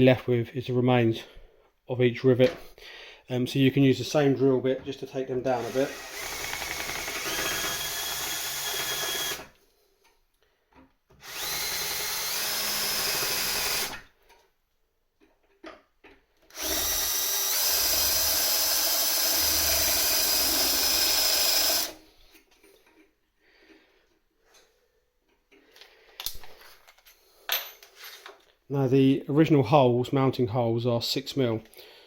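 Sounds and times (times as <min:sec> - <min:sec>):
electric drill grinding metal: 0:05.5 - 0:09.6, 0:11.2 - 0:14.1, 0:16.5 - 0:22.0.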